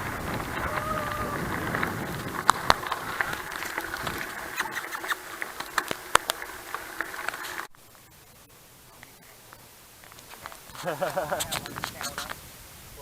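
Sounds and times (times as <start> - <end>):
bicycle clicks and rattles: 0.0 - 7.7
bicycle rolling over rough track: 0.0 - 12.4
wind: 0.0 - 13.0.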